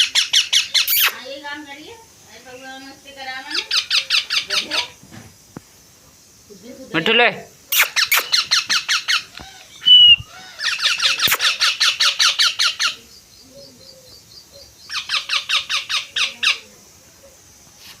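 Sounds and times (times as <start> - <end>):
parrot chicks begging calls: 0.0 - 1.2, 7.7 - 13.1, 14.6 - 16.6
brief whistle: 9.8 - 10.3.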